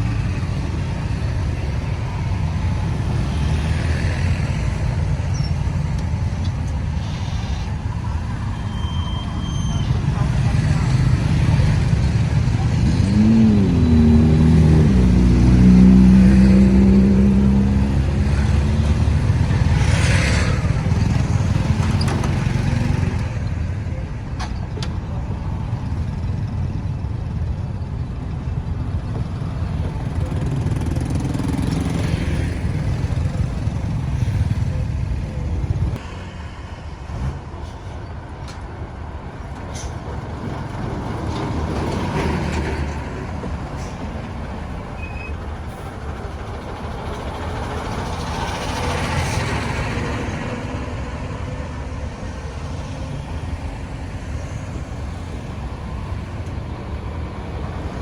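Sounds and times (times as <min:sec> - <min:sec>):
road noise rumble: 0:00.0 - 0:58.0
engine revving: 0:09.9 - 0:23.2.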